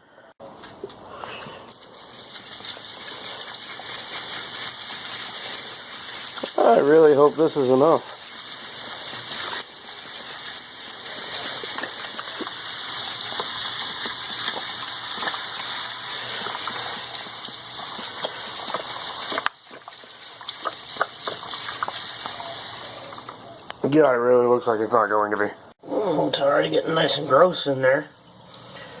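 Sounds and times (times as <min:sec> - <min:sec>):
liquid gushing from a bottle: 0:01.5 - 0:23.6.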